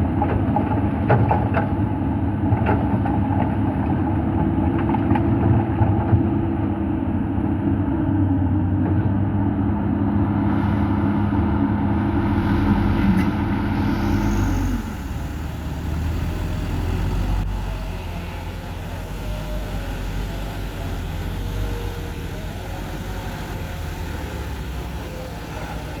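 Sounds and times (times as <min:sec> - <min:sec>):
diesel engines running: 0:00.0 - 0:26.0
higher engine hum: 0:07.0 - 0:26.0.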